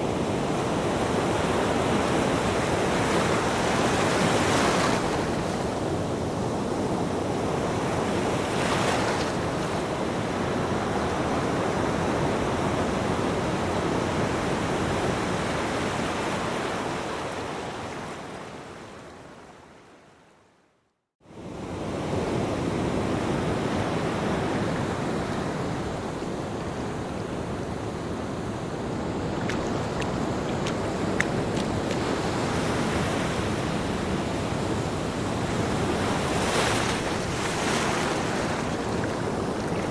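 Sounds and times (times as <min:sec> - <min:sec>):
ocean surf washing onto beach: 0:21.7 - 0:39.9.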